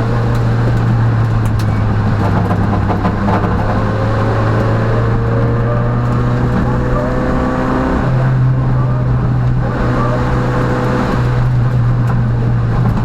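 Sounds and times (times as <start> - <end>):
rally car engine running hard: 0.0 - 13.0.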